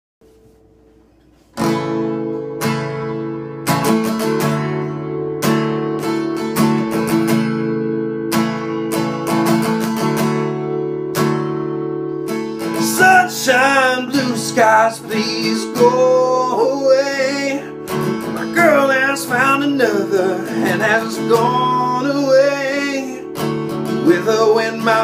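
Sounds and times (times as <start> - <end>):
acoustic guitar strumming: 0.2 - 25.0
man singing: 12.6 - 25.0.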